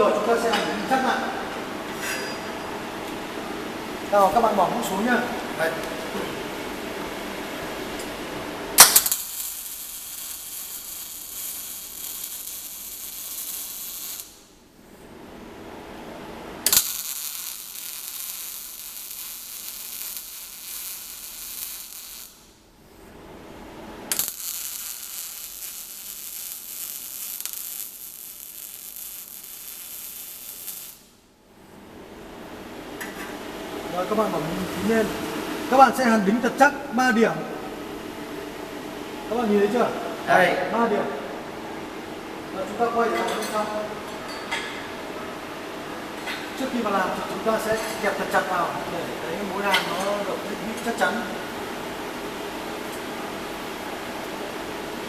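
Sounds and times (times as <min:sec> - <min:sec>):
arc welding crackling hiss: 0:07.9 - 0:14.7, 0:16.6 - 0:22.7, 0:24.0 - 0:31.3, 0:46.0 - 0:55.0
sharp crack of arc striking: 0:08.8 - 0:14.4, 0:24.1 - 0:31.0.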